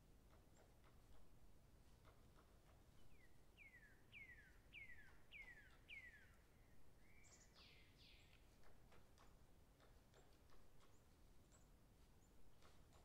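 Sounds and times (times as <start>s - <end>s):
faint light ticks: 0.2s - 6.4s, 7.0s - 13.0s
songbird whistling: 3.6s - 8.2s.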